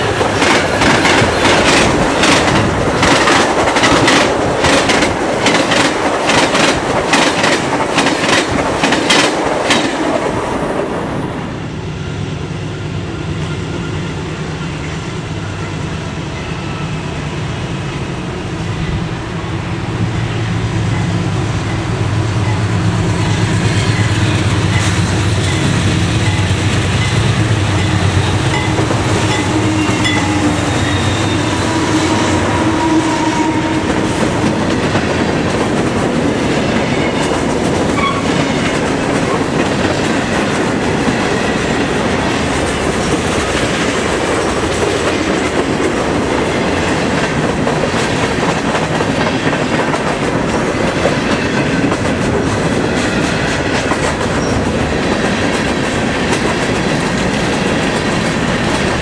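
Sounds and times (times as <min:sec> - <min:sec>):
train cars clattering over rails: 0:00.0 - 0:11.2, 0:21.7 - 0:59.0
locomotive engines droning: 0:10.6 - 0:44.7.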